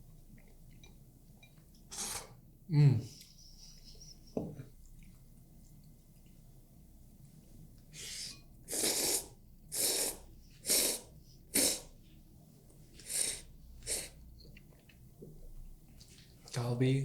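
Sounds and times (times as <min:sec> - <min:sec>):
person slurping noodles: 0:01.9 - 0:02.4, 0:08.0 - 0:11.9.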